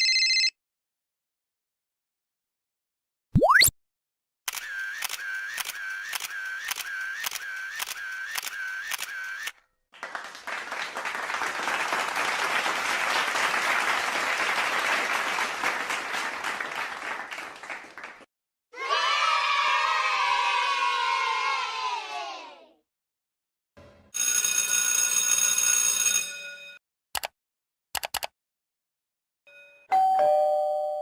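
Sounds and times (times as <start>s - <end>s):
rhythmic camera shutter clicking: 4.5s - 9.5s
applause: 9.9s - 18.3s.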